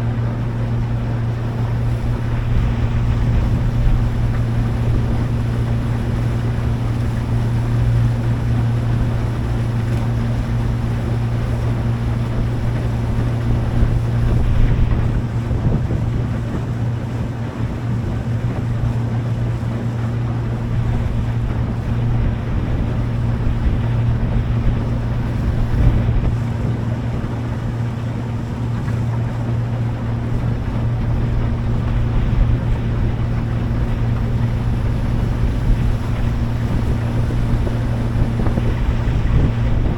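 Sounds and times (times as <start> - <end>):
motorboat engine droning: 0.0 - 39.9
water noise: 0.0 - 39.9
wind noise on microphone: 0.0 - 39.9.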